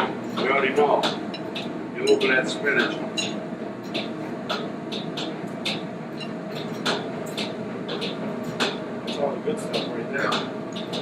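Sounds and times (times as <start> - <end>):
kitchen ventilation fan: 0.0 - 11.0
utensils clinking on plate: 0.3 - 4.1.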